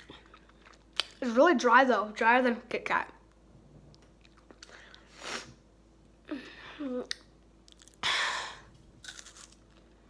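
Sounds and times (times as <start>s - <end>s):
person chewing wafer bar: 7.0s - 8.0s, 9.0s - 10.0s.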